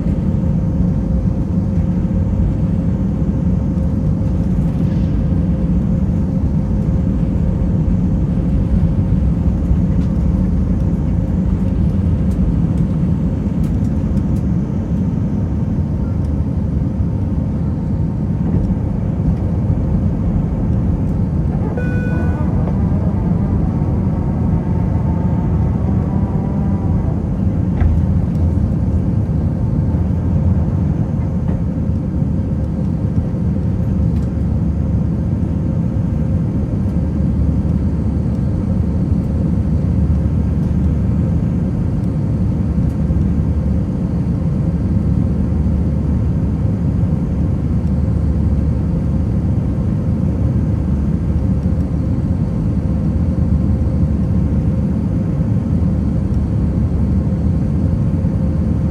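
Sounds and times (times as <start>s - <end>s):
engine and airflow rumble: 0.0s - 58.9s
faint steady hum: 20.7s - 28.7s.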